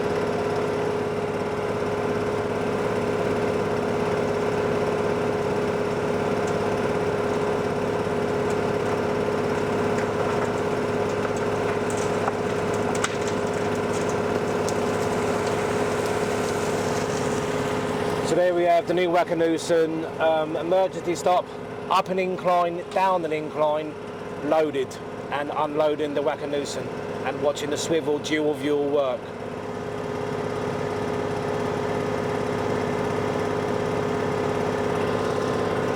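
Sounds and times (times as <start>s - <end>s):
diesel engine humming: 0.0s - 20.8s
faint clicks and knocks: 6.4s - 17.8s.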